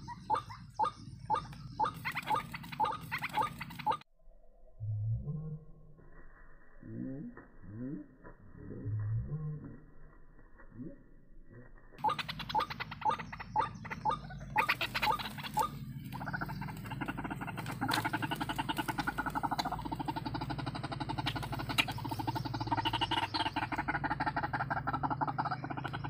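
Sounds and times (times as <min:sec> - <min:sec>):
waterhen calls: 0:00.0 - 0:04.0, 0:12.0 - 0:26.0.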